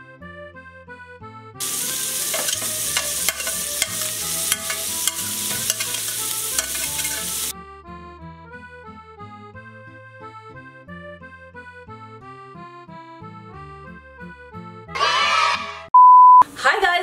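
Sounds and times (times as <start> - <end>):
accordion music: 0.0 - 5.5, 6.2 - 15.1
onion sizzling in butter: 1.6 - 7.5
fork scraping and tapping plate: 1.7 - 7.5.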